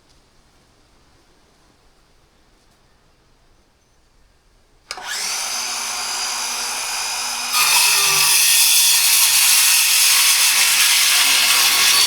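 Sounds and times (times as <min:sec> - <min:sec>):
saw switch click: 0:04.9 - 0:05.3
circular saw whining: 0:04.9 - 0:12.0
saw cutting wood: 0:04.9 - 0:12.0.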